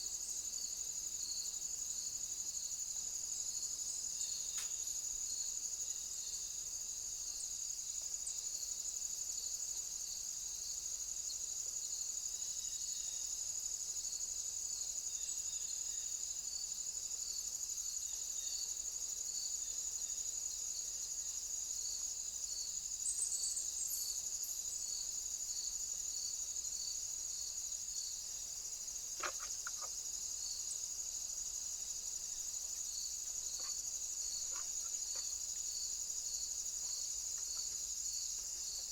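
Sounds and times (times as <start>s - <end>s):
insects trilling: 0.0s - 38.9s
pulsing insect call: 22.3s - 38.9s.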